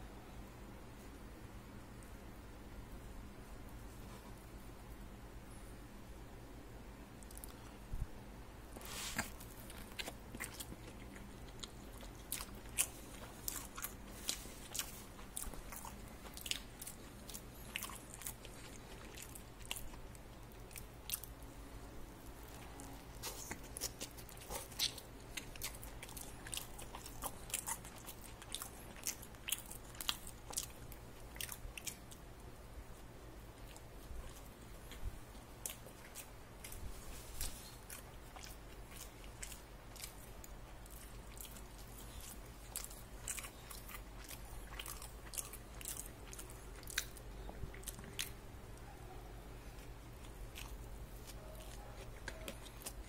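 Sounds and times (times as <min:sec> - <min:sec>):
chewing crispy fried chicken: 0:07.2 - 0:07.7, 0:08.8 - 0:21.5, 0:22.2 - 0:48.9, 0:49.6 - 0:53.0.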